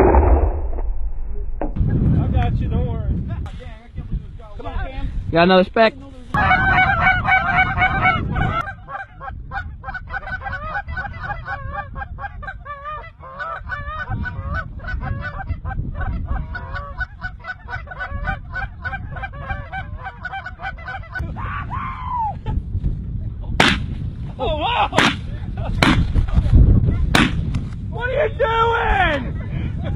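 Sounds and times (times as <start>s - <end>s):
low wind rumble: 0.0s - 29.9s
geese honking: 6.4s - 21.2s.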